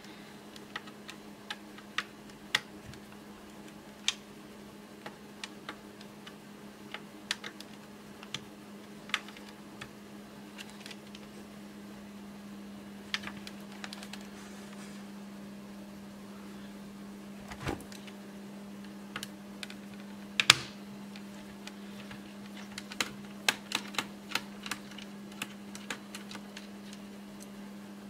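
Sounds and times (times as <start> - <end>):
plastic laptop parts clicking: 21.6 - 27.0.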